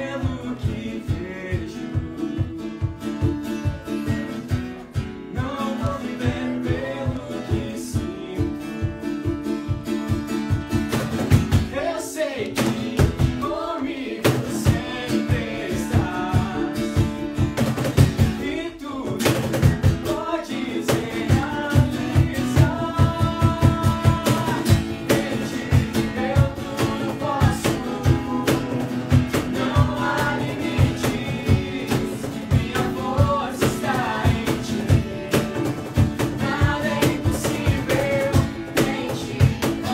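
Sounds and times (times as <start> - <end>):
guitar: 0.0 - 39.9
steady drum beat: 0.0 - 39.9
person singing: 5.3 - 9.1, 11.7 - 17.4, 18.3 - 39.9.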